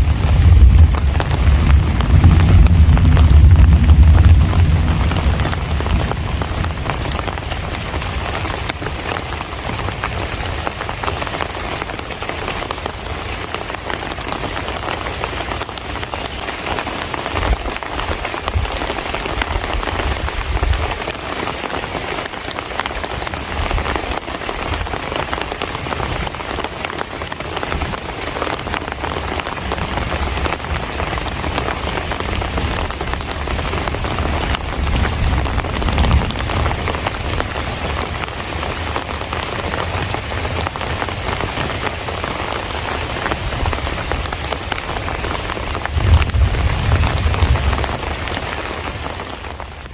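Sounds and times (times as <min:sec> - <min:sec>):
low rumble: 0:00.0 - 0:06.9
heavy rain pattering: 0:00.0 - 0:49.9.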